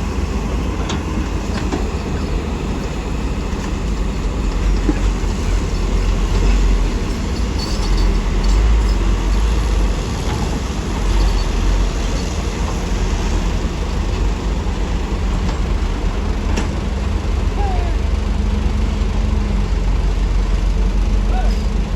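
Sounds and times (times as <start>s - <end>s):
diesel engine rumbling: 0.0s - 21.9s
light clanks and rattles: 0.8s - 17.7s.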